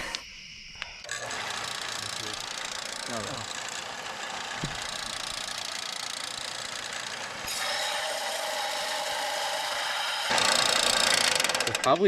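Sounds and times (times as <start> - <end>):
steady whine: 0.0 - 12.0
power tool grinding steel pipe: 1.0 - 12.0.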